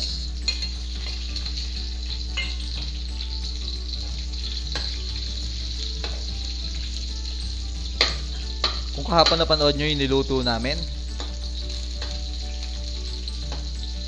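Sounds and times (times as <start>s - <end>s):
onion sizzling in hot oil: 0.0s - 14.0s
metal ladle knocking against pan: 8.0s - 9.6s.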